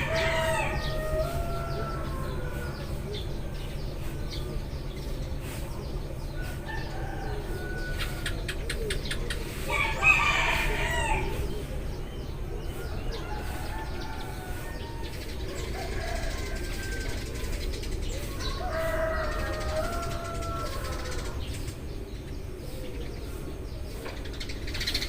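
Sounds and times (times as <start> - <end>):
rooster crowing: 0.0 - 3.2, 6.4 - 8.4, 9.7 - 11.4, 12.8 - 17.6, 18.4 - 21.4
low background hum: 0.0 - 25.0
sparrows chirping: 0.0 - 25.0.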